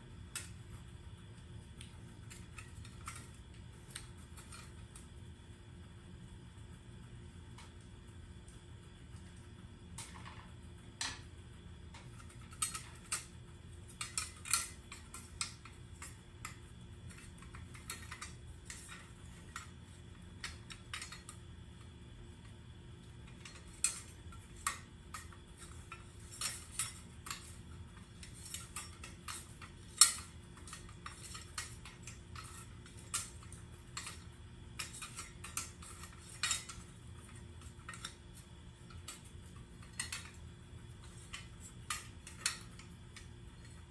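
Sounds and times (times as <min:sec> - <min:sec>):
faint steady hum: 0:00.0 - 0:43.9
metal parts and tools clinking: 0:23.3 - 0:40.4.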